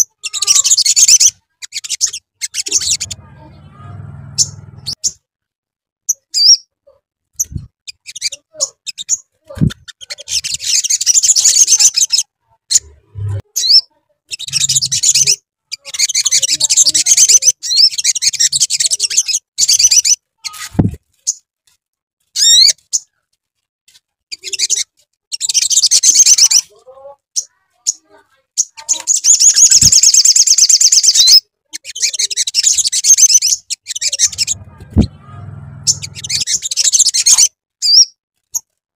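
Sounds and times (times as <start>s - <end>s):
low thumps: 34.3s - 36.5s.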